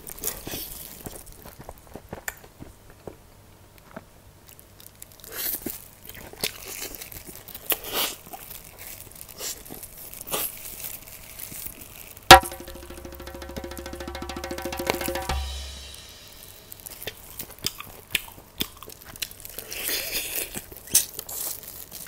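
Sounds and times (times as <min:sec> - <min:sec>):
chewing fried chicken: 0:00.1 - 0:01.6, 0:04.5 - 0:12.2, 0:17.6 - 0:22.0
music with steady beat: 0:12.3 - 0:16.8
loud sharp hit: 0:12.3 - 0:16.9.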